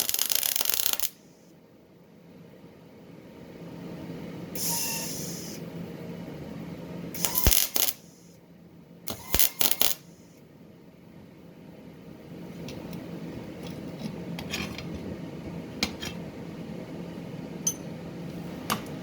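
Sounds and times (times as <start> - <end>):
low room hum: 0.0 - 19.0
sharp knocks and clinks: 17.6 - 17.9.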